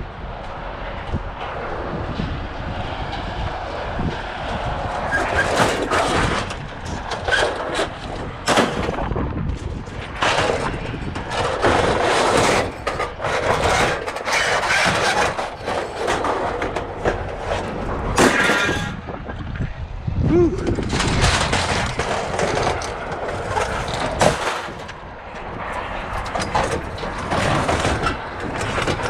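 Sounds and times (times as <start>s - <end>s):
noisy background: 0.0s - 29.0s
scrap metal crashing onto pile: 5.2s - 9.1s, 10.1s - 19.1s, 20.8s - 25.0s.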